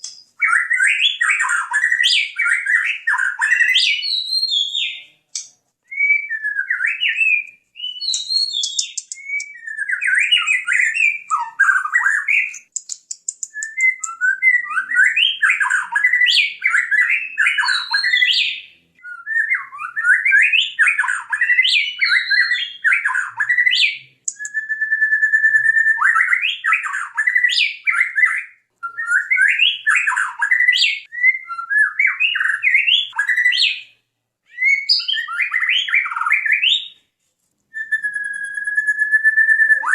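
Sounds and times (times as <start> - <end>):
songbird singing fast whistles: 5.9 - 33.9, 37.8 - 39.9.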